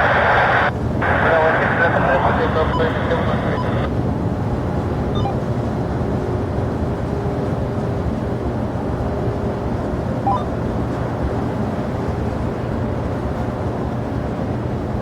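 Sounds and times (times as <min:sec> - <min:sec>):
jet engines rumbling: 0:00.0 - 0:06.2.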